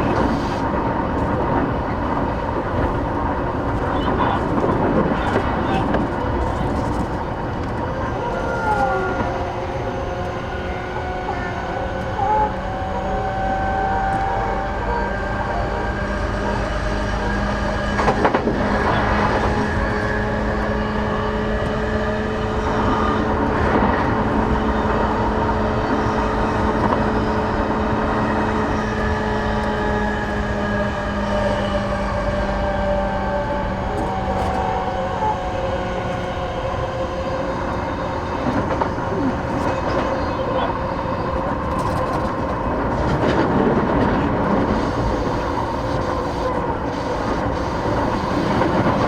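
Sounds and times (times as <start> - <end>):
train wheels rumbling on rail: 0.0 - 49.0
electric motor tones: 44.5 - 49.0.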